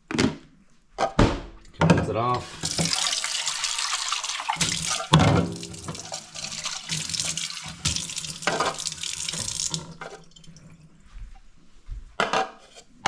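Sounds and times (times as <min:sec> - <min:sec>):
kitchen tap running: 0:02.4 - 0:10.7.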